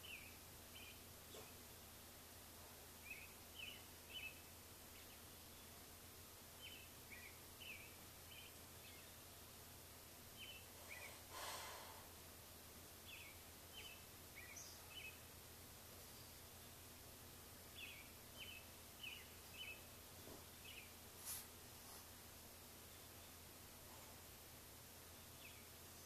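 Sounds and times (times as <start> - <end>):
birds chirping: 0.0 - 26.0
faint low hum: 0.0 - 26.0
breathy hiss: 10.6 - 12.4, 21.1 - 22.3.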